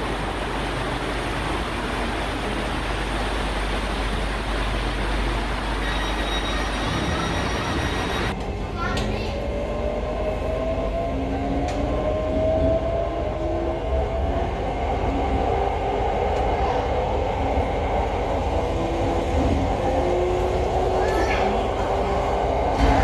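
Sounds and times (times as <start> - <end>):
train wheels rumbling on track: 0.0 - 23.0
train motor whine: 5.1 - 8.3.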